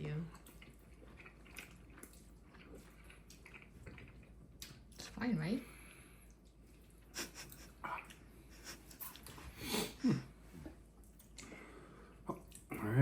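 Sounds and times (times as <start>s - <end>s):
eating mouth smacks and breaths: 10.7s - 12.7s.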